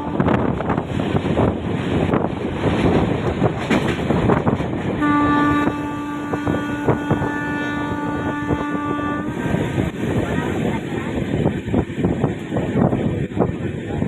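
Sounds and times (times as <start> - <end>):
train horn blast: 0.0 - 0.6, 5.0 - 10.0
train rumbling on rails: 0.0 - 14.0
knocks of train: 0.2 - 10.7.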